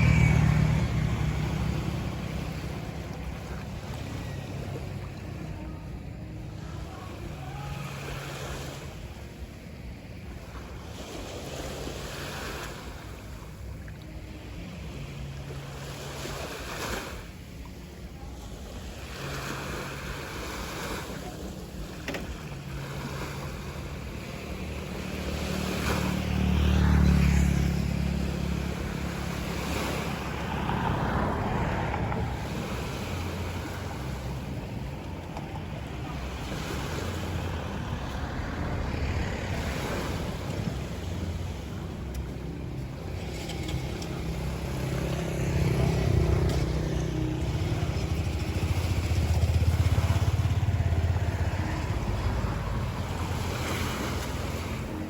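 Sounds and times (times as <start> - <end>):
sea waves washing onto beach: 0.0 - 55.0
wind rumbling on microphone: 22.4 - 55.0.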